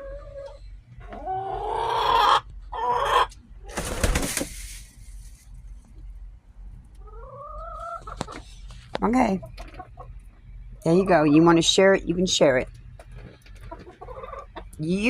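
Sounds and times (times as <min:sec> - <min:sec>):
hens calling: 0:00.0 - 0:03.8, 0:07.0 - 0:08.4, 0:13.5 - 0:15.0
rustling: 0:04.0 - 0:05.9.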